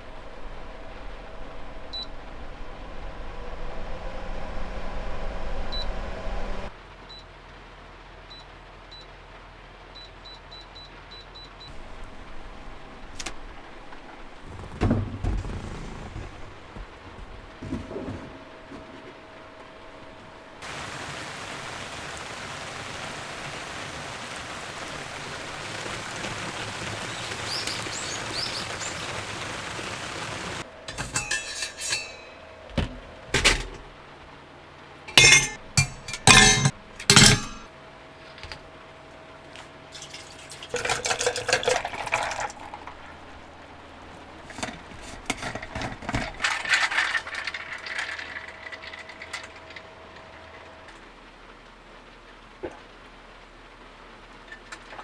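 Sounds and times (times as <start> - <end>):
scraping or pouring: 11.7 - 22.0, 26.9 - 34.0, 35.1 - 37.7, 39.9 - 50.9
steady rushing hiss: 11.7 - 30.9
hard objects clinking: 30.8 - 33.9, 35.1 - 37.7.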